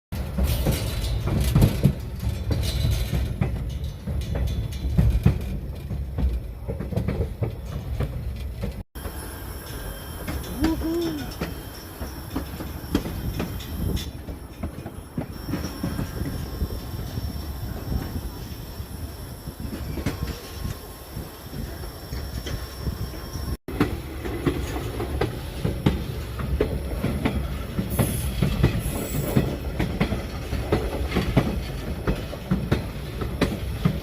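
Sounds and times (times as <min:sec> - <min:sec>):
train running on rails: 0:00.1 - 0:34.0
wheels clicking over track: 0:00.2 - 0:34.0.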